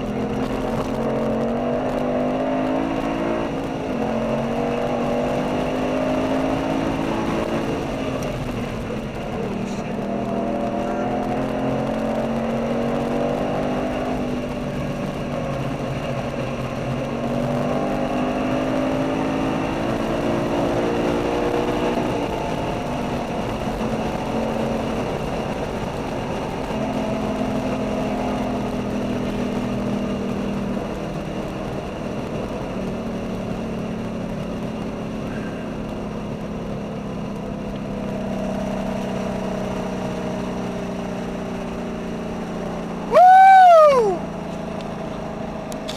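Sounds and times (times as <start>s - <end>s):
car engine pulling at speed: 0.0s - 45.9s
road and wind noise: 0.0s - 45.9s
loud tone rising and falling: 43.0s - 44.3s.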